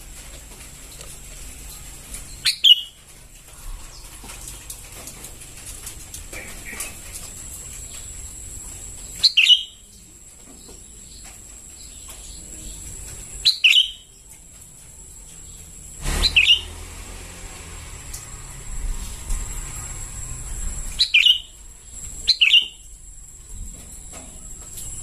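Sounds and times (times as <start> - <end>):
bird chirping: 2.2 - 3.0, 9.0 - 14.4, 15.2 - 16.8, 20.8 - 23.0.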